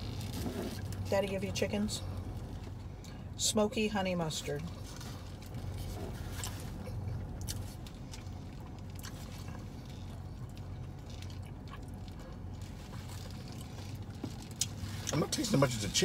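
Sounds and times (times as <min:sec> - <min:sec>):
low hum inside car: 0:00.0 - 0:16.0
person chewing: 0:05.0 - 0:15.2.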